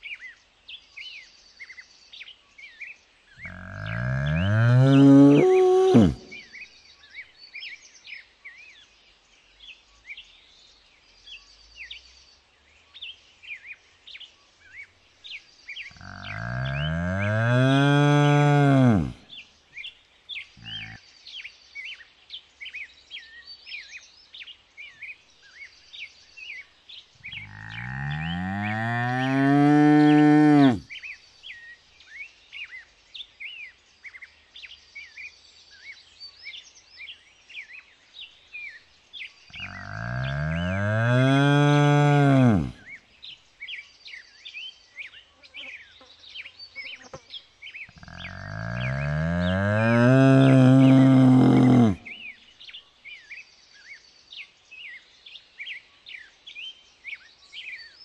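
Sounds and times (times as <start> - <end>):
small birds chirping: 0.0 - 58.0
cow mooing: 3.4 - 6.4, 16.0 - 19.2, 27.4 - 30.8, 39.6 - 42.8, 48.0 - 52.2.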